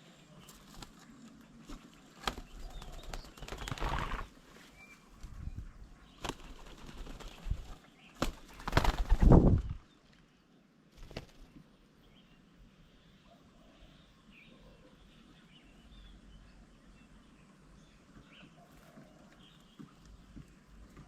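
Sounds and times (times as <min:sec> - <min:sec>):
bird wings flapping: 0:00.5 - 0:04.4, 0:05.1 - 0:09.8, 0:10.9 - 0:11.6.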